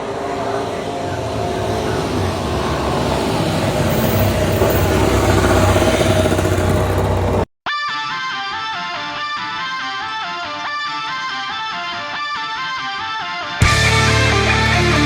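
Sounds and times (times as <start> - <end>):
racing motorcycle engine high revs: 0.0 - 7.5
guitar music: 5.4 - 15.0.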